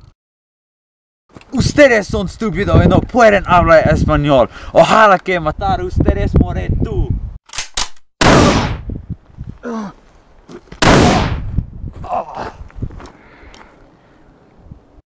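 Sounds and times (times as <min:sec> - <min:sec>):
gunshots: 0:07.6 - 0:08.8, 0:10.8 - 0:11.4
short vocal cry: 0:09.6 - 0:10.0, 0:12.0 - 0:12.6.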